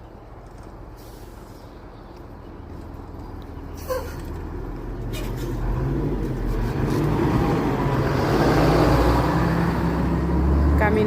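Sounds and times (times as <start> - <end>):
motor vehicle passing: 3.0 - 11.0.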